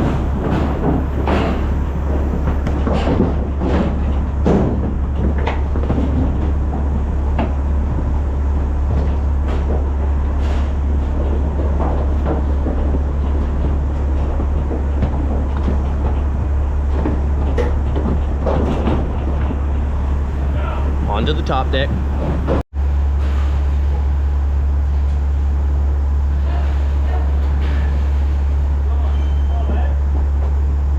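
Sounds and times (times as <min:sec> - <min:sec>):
knocks and clanks: 0:00.0 - 0:22.6
truck engine low rumble: 0:00.0 - 0:30.9.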